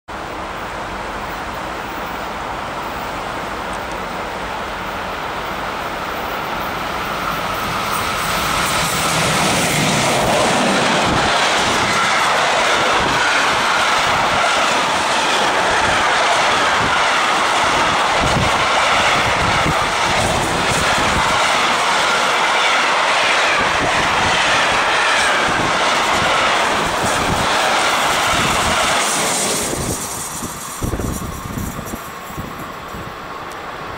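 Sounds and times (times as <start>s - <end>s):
freight train passing: 0.1s - 33.9s
wind buffeting microphone: 7.2s - 33.3s.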